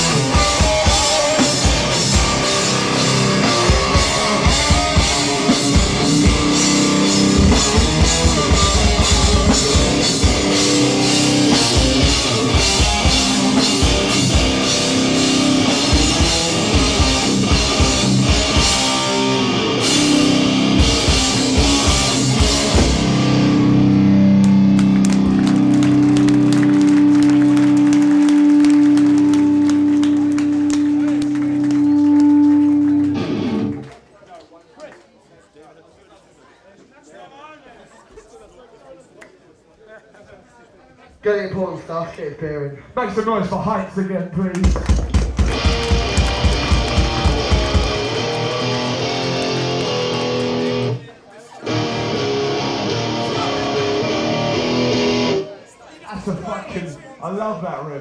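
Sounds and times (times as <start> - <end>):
drum kit with heavy bass drum: 0.0 - 23.8, 44.6 - 48.4
distorted electric guitars: 0.0 - 33.9, 44.7 - 51.0, 51.6 - 55.6.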